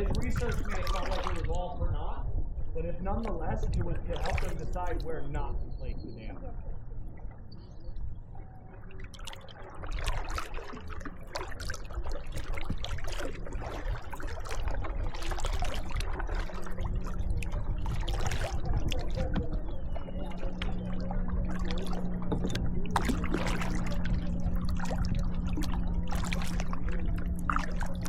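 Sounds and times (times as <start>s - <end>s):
paddles splashing in water: 0.0s - 1.7s, 3.2s - 5.1s, 8.5s - 28.0s
water dripping off paddles: 8.9s - 28.0s.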